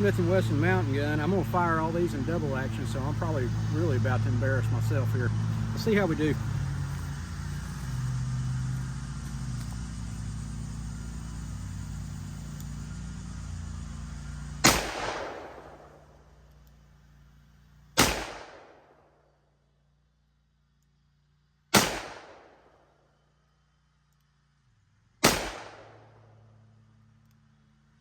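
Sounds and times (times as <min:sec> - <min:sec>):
lawn mower droning: 0:00.0 - 0:18.0
revolver shots echoing: 0:14.6 - 0:16.1, 0:18.0 - 0:18.9, 0:21.8 - 0:22.6, 0:25.2 - 0:26.2.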